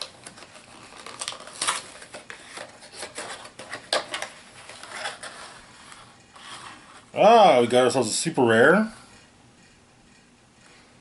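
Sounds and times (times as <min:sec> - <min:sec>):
plastic packaging rustling: 0:00.0 - 0:07.1.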